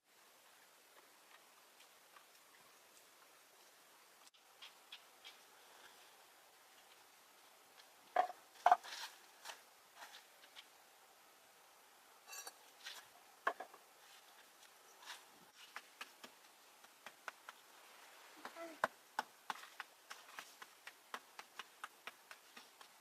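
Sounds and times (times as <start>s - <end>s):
dishes and utensils clinking: 12.3s - 12.6s
loud ringing clinks: 12.3s - 12.6s.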